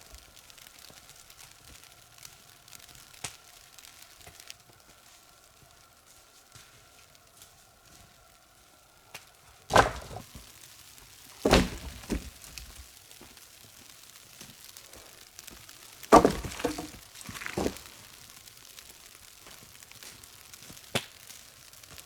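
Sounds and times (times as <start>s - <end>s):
small wooden knocks: 9.7s - 10.4s, 11.4s - 12.8s, 16.1s - 17.9s
heavy wooden thunks and cracks: 9.7s - 10.5s, 11.4s - 12.8s, 16.0s - 17.9s.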